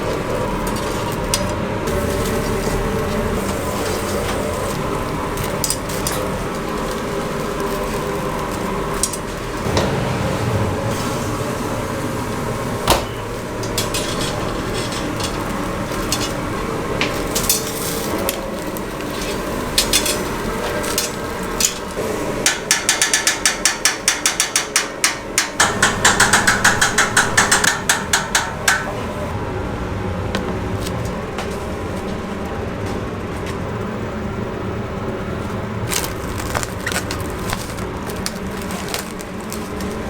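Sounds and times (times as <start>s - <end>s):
knocks and clatter: 22.5s - 29.2s.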